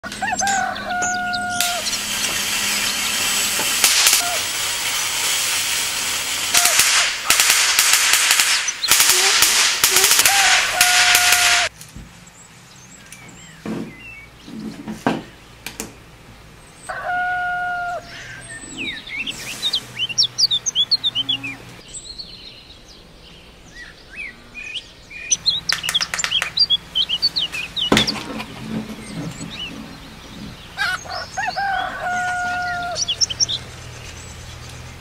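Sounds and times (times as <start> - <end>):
crackling corona discharge hiss: 0.2 - 14.3, 17.5 - 22.0, 25.3 - 28.2, 29.0 - 35.0.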